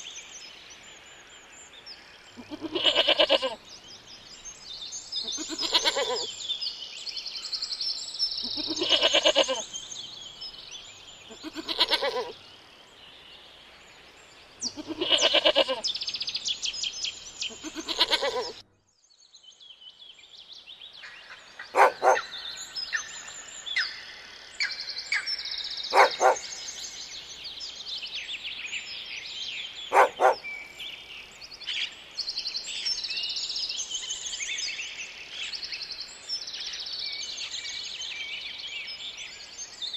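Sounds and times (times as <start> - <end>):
small birds chirping: 0.0 - 39.9
goats bleating: 2.4 - 3.6, 5.4 - 6.3, 8.6 - 9.6, 11.4 - 12.3, 14.7 - 15.8, 17.5 - 18.6
short sharp bird calls: 21.6 - 22.4, 25.9 - 26.8, 29.9 - 30.8.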